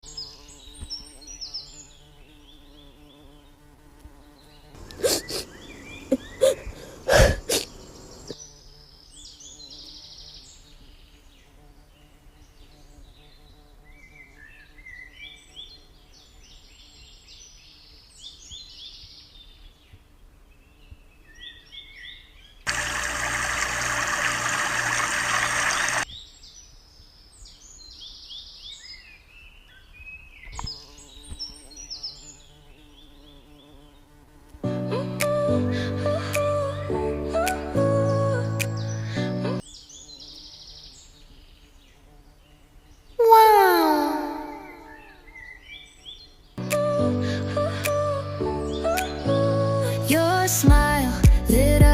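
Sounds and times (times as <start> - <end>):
small birds chirping: 0.0 - 34.6, 37.9 - 46.9
loud burst of hissing: 22.7 - 26.0.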